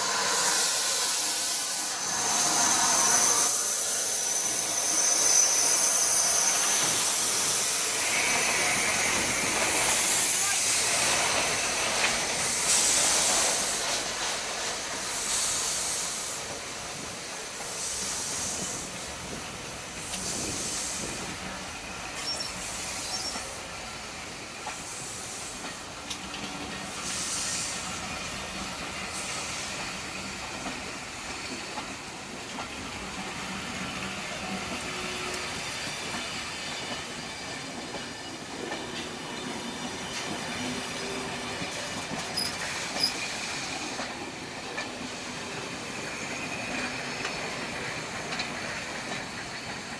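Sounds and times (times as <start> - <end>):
steam locomotive hiss bursts: 0.0 - 49.9
train rumbling on rails: 0.0 - 49.9
faint wheel squeal: 22.2 - 23.5, 42.3 - 43.4.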